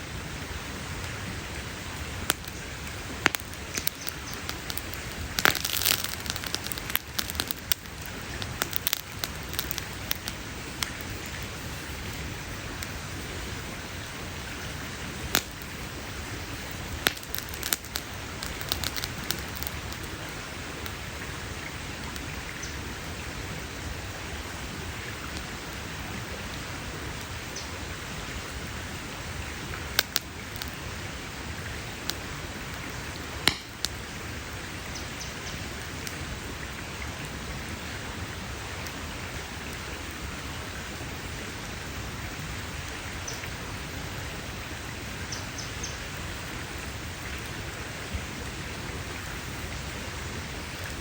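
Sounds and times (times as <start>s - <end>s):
campfire hissing: 0.0s - 51.0s
campfire pops and snaps: 1.9s - 13.4s, 14.8s - 21.0s, 29.9s - 30.8s, 32.0s - 34.1s, 50.6s - 51.0s.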